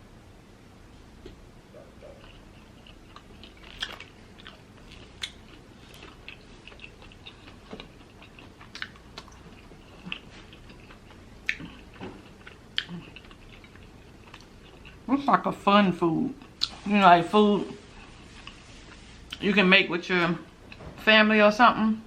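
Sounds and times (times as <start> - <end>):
crunchy food chewing: 1.7 - 15.1, 17.8 - 19.4.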